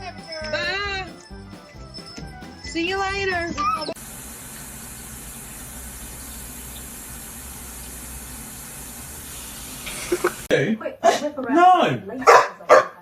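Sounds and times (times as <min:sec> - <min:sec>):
running water rushing: 0:03.9 - 0:10.5.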